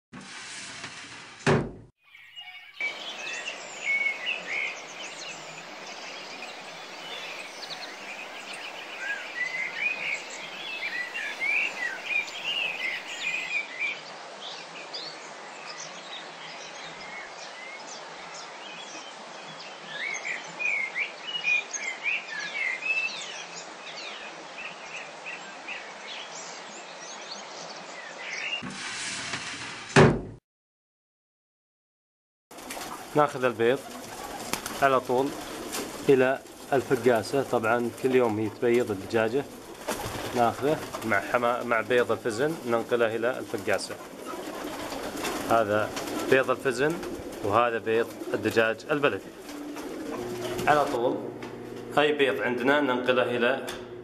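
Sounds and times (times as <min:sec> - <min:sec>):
birds chirping: 0:02.1 - 0:28.6, 0:32.5 - 0:54.0
background hiss: 0:02.8 - 0:27.1, 0:32.6 - 0:54.0
sharp thump: 0:30.0 - 0:30.4.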